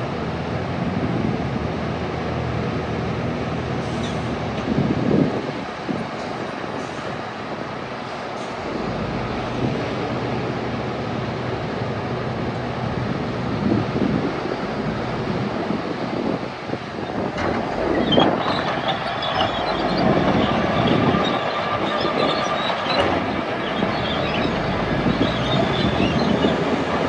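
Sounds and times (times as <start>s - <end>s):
bulldozer diesel engine: 0.0s - 27.0s
steel tracks clanking and squealing: 3.8s - 4.4s, 14.4s - 27.0s.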